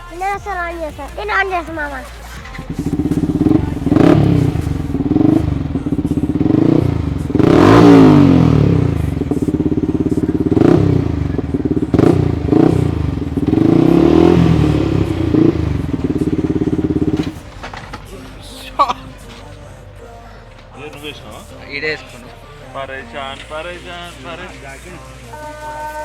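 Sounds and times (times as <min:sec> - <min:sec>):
dirt bike engine revving: 0:02.2 - 0:19.6.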